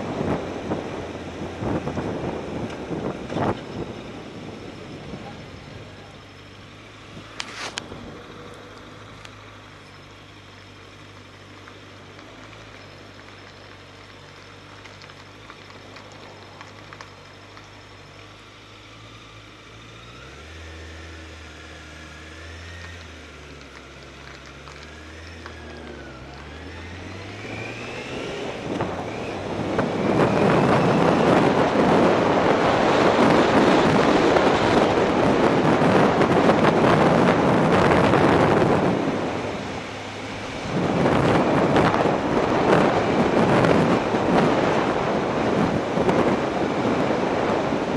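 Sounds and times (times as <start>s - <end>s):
wind rushing over microphone: 0.0s - 6.0s, 26.0s - 47.9s
motorcycle engine idling and revving: 0.0s - 47.9s.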